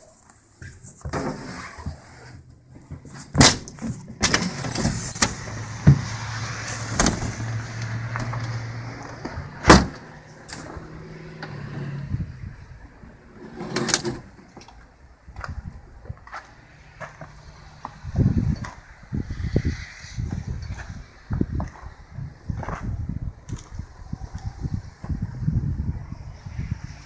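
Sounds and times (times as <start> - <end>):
door opening and shutting: 3.3 - 7.6, 9.6 - 12.0, 13.4 - 14.4.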